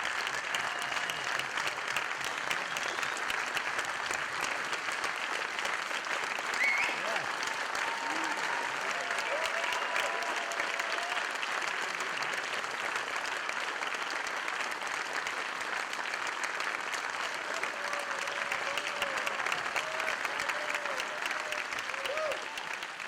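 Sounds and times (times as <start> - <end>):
audience applauding: 0.0 - 23.0
shouts and whoops: 6.5 - 11.4, 17.4 - 22.9.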